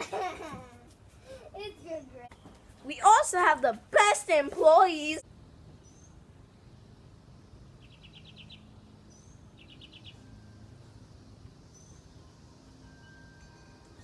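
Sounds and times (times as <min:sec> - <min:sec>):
low steady background noise: 0:00.0 - 0:14.0
faint bird trills and chirps: 0:05.7 - 0:12.4.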